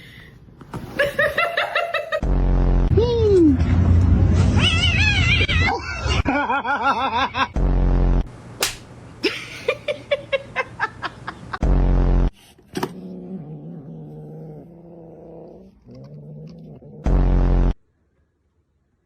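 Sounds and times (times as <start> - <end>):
cat yowling: 4.6 - 5.8.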